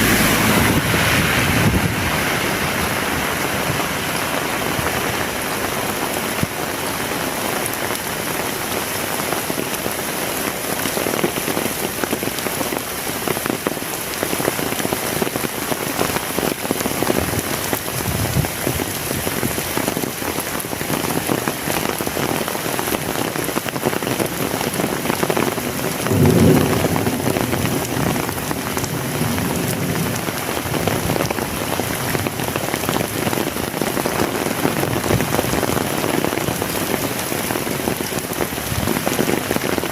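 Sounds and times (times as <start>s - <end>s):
low rumble: 0.0s - 3.5s
heavy rain falling: 0.0s - 39.9s.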